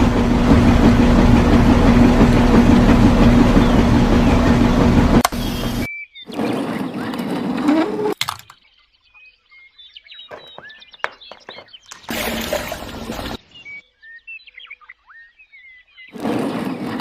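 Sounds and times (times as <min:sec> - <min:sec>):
loud motor-like rumble: 0:00.0 - 0:05.9
small birds chirping: 0:03.4 - 0:17.0.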